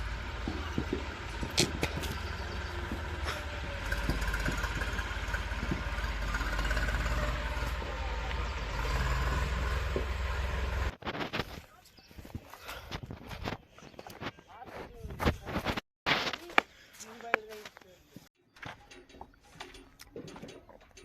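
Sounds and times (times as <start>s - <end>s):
tractor diesel engine rumbling: 0.0s - 11.0s.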